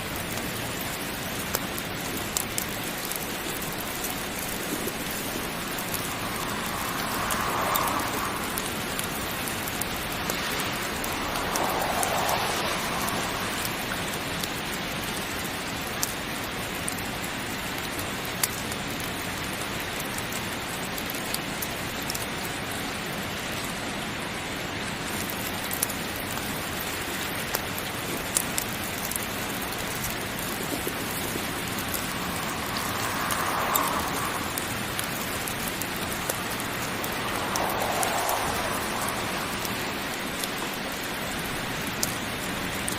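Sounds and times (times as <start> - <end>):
heavy rain falling: 0.0 - 42.9
sharp ticks: 29.8 - 42.9.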